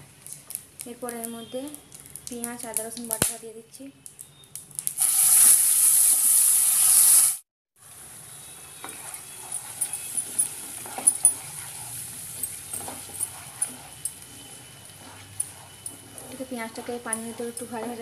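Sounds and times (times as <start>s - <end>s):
paste sizzling in hot oil: 4.8s - 18.0s
spatula scraping and clicking: 8.8s - 18.0s.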